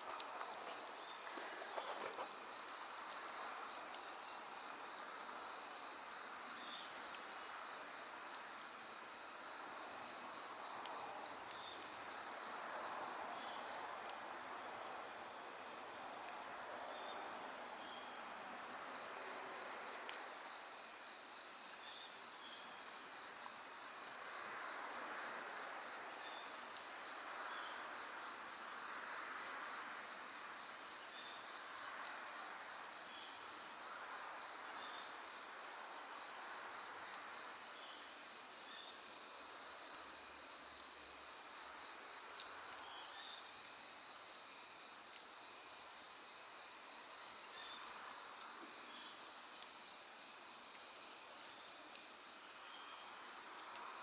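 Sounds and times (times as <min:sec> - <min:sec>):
crickets chirping: 0:00.0 - 0:54.0
faint sharp clicks: 0:20.0 - 0:20.2, 0:53.5 - 0:53.9.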